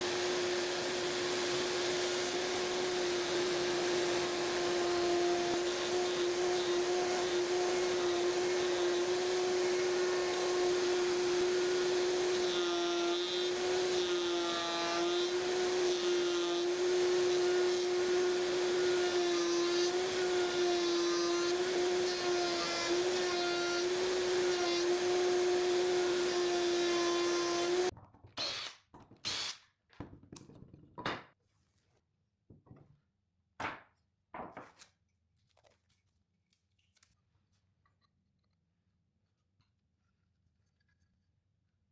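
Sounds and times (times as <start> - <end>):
router high whine: 0.0 - 12.5.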